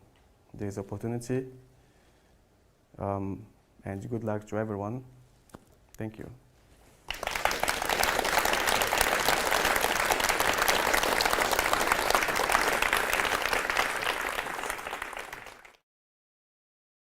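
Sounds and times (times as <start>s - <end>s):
audience applauding: 7.1s - 15.8s.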